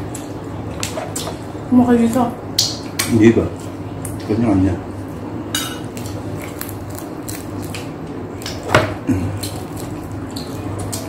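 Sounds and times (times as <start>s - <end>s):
wet crackles and clicks: 2.1s - 3.2s, 9.4s - 11.0s
people chewing: 5.9s - 11.0s.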